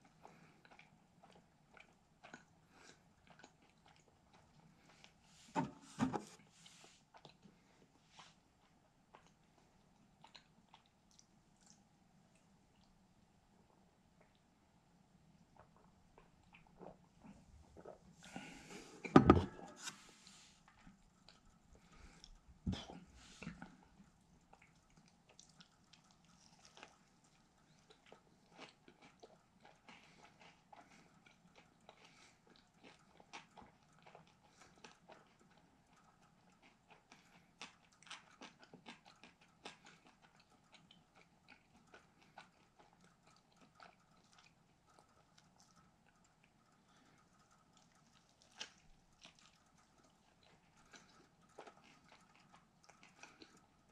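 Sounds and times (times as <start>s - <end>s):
chewing and crunching: 0.0s - 53.9s
loud thump: 19.1s - 19.6s.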